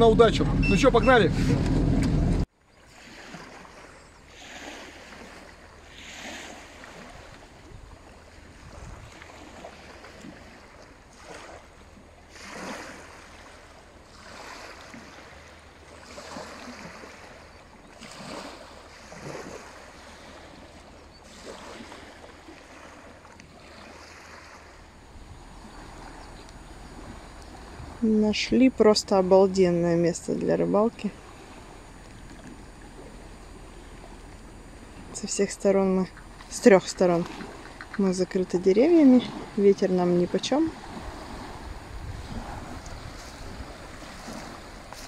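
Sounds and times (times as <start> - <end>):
wind rumble: 0.0 - 2.5, 24.6 - 45.0
small waves lapping on shore: 2.4 - 45.0.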